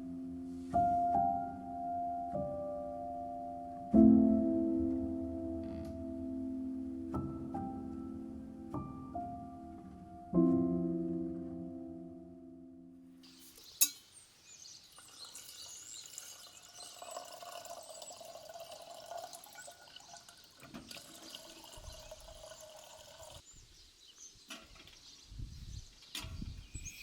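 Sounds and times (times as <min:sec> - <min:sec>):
water pouring and trickling: 0:14.6 - 0:23.5.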